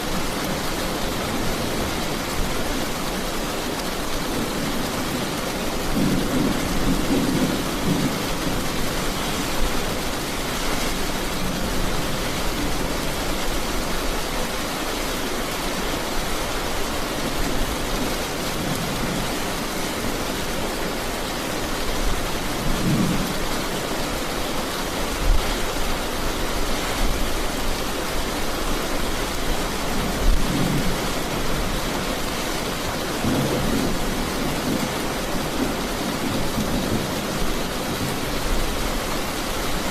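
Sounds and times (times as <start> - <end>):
heavy rain falling: 0.0 - 39.9
thunder rumbling: 4.3 - 13.3.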